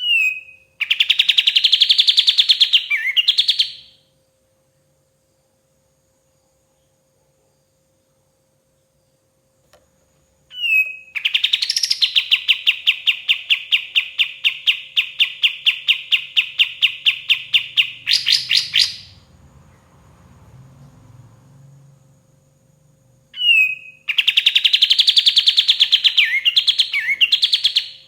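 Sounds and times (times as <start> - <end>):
songbird singing: 0.0 - 4.0, 10.3 - 28.0.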